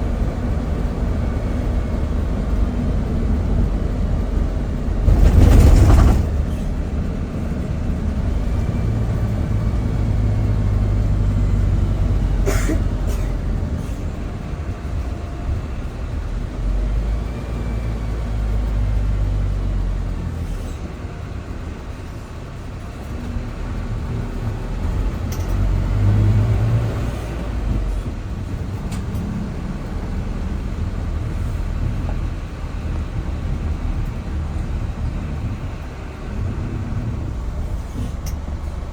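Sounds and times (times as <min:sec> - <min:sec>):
airliner cabin engine drone: 0:00.0 - 0:08.8.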